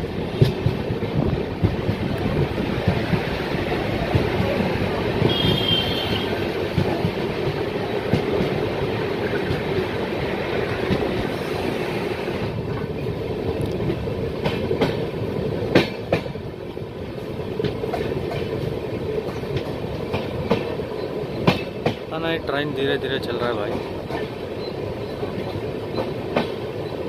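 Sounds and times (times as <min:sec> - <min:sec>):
wind rush on microphone: 0:00.0 - 0:05.6
train wheels rumbling on rail: 0:00.0 - 0:27.0
wheels clicking over rail joints: 0:00.1 - 0:11.4, 0:12.5 - 0:22.5, 0:23.2 - 0:27.0.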